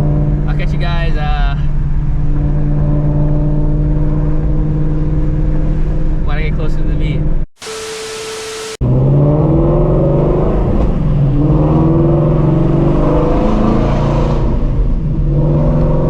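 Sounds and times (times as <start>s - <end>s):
brief steady-tone hiss: 7.6s - 8.8s
loud car engine accelerating: 7.7s - 16.0s.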